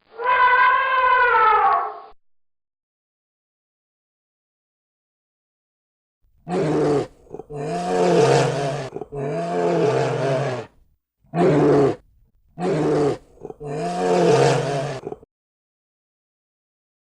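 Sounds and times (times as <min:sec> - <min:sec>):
animal drawn-out crying call: 0:00.1 - 0:02.1, 0:06.5 - 0:12.0, 0:12.6 - 0:15.2.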